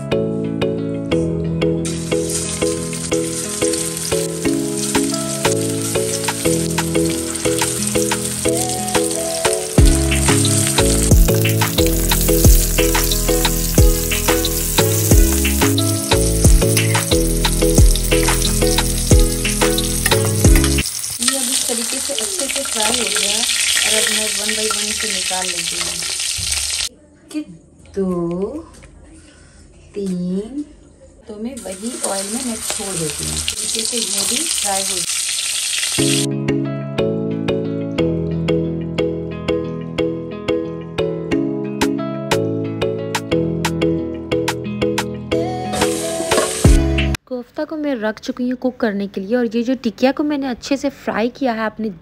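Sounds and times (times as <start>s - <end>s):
background music with steady beat: 0.0s - 20.8s, 36.3s - 47.2s
patties sizzling in oil: 1.9s - 26.9s, 31.6s - 36.3s, 45.7s - 47.0s.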